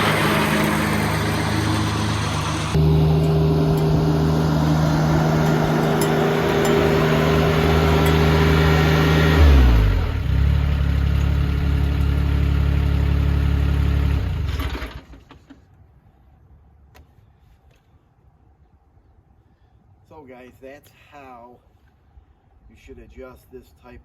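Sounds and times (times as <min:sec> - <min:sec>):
tractor diesel engine running: 0:00.0 - 0:15.3.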